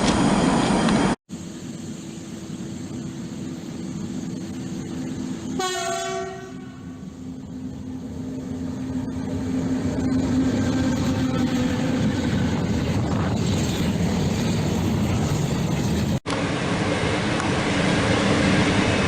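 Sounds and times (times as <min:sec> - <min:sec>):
train running hum: 0:00.0 - 0:19.0
train horn blast: 0:05.5 - 0:07.1.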